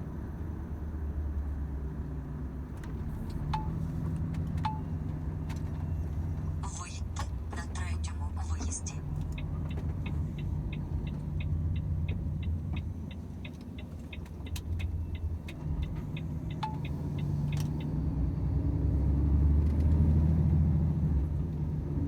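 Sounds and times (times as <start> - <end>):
diesel truck engine drone: 0.0 - 22.0.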